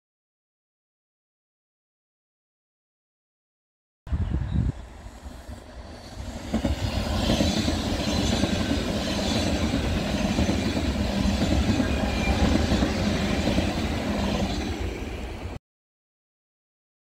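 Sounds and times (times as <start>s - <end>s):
high-speed train passing: 4.1s - 15.6s.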